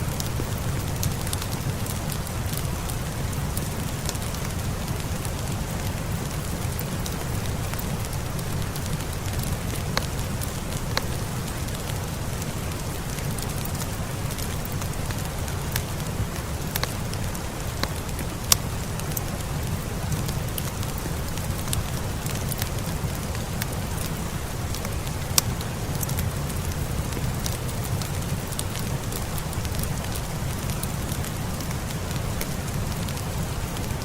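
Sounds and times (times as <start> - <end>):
fireplace crackling and popping: 0.0 - 34.0
steady rain: 0.0 - 34.0.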